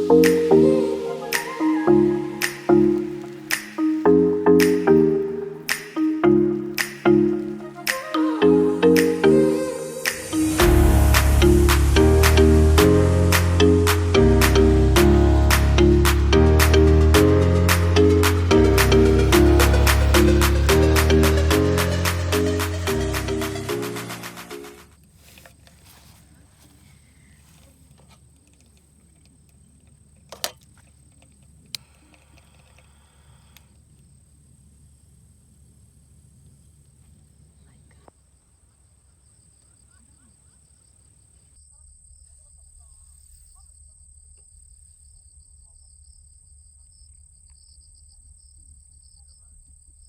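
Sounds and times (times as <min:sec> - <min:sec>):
insect pulsing chirps: 0:00.0 - 0:24.9.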